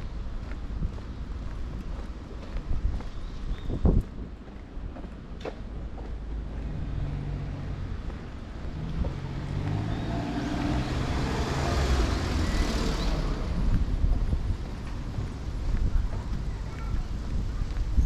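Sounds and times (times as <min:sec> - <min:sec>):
vehicle driving past: 0:06.6 - 0:14.0.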